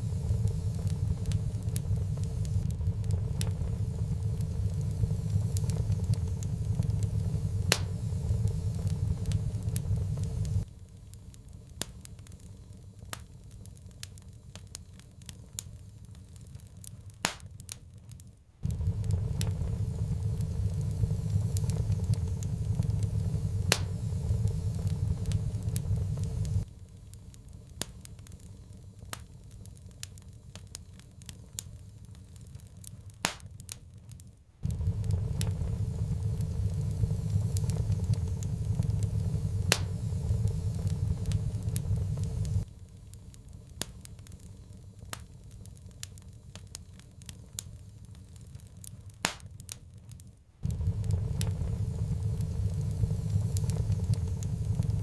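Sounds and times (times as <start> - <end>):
loud low rumble: 0.0 - 10.7, 18.6 - 26.7, 34.6 - 42.7, 50.6 - 55.0
wood fire crackling and popping: 0.0 - 55.0.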